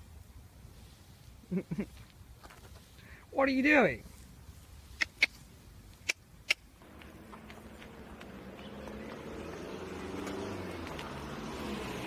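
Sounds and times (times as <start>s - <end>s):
engine humming: 6.8s - 12.0s.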